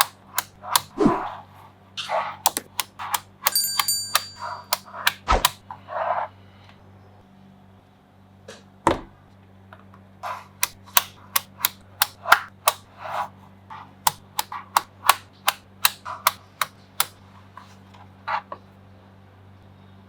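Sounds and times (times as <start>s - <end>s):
magnetic balls clicking together: 0.0s - 1.0s, 2.0s - 5.6s, 10.6s - 12.8s, 14.1s - 17.2s
high metallic ring: 3.4s - 5.0s.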